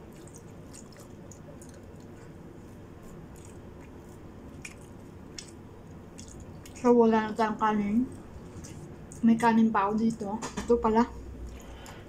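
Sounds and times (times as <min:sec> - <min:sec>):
person chewing food: 0:00.0 - 0:06.8, 0:08.1 - 0:09.3, 0:11.4 - 0:12.0.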